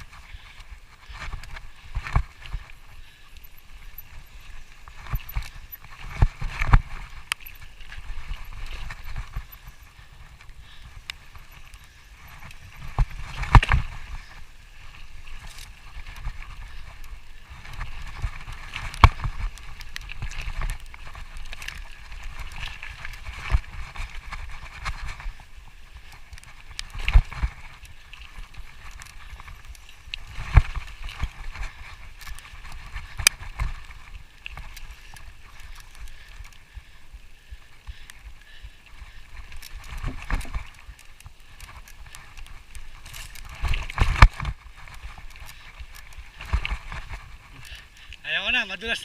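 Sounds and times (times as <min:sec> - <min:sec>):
footsteps on dirt trail: 0:00.0 - 0:49.0.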